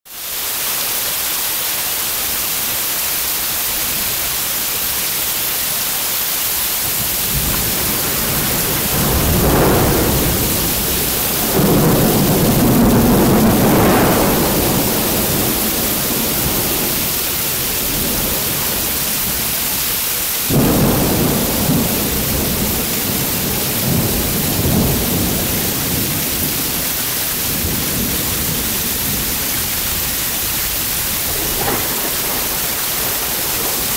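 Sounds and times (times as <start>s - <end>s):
heavy rain hissing: 0.1s - 33.9s
thunder clap: 6.8s - 33.9s
thunder rolling: 6.8s - 33.9s.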